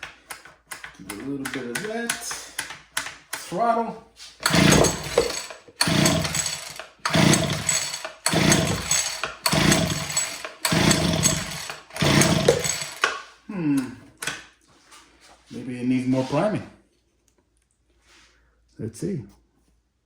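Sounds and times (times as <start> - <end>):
hedge trimmer engine pull-start cranking: 4.4 - 13.3.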